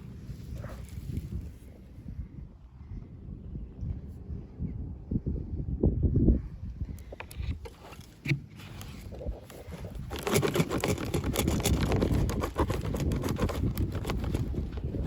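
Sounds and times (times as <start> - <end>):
packaging rustling and crinkling: 7.8 - 15.0.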